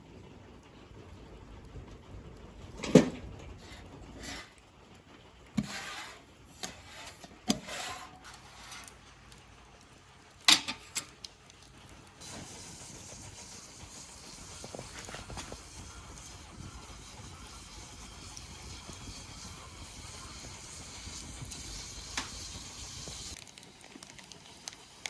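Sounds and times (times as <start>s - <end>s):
sharp knocks and clanks: 2.7s - 3.4s
steady hiss: 12.1s - 25.0s.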